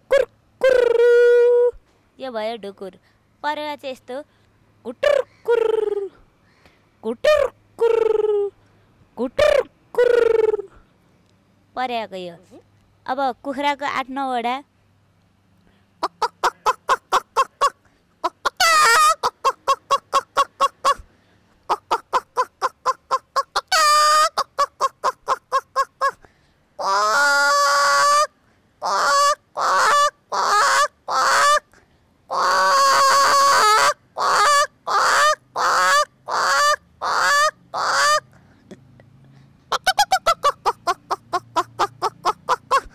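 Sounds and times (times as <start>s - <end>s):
woman imitating chicken clucks: 0.0s - 1.8s, 4.9s - 6.2s, 7.0s - 8.6s, 9.2s - 10.8s, 16.0s - 21.1s, 21.7s - 26.2s, 26.8s - 31.7s, 32.3s - 38.8s, 39.7s - 42.9s.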